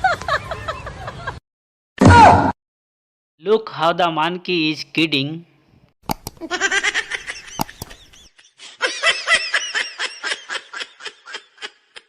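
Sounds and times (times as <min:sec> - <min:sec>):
high-pitched laughter: 0:06.4 - 0:12.0.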